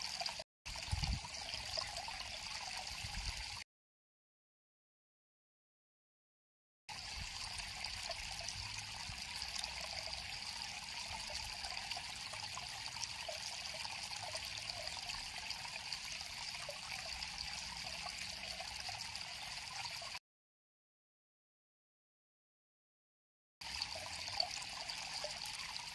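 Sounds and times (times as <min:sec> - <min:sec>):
river water flowing: 0:00.0 - 0:03.6, 0:06.9 - 0:20.2.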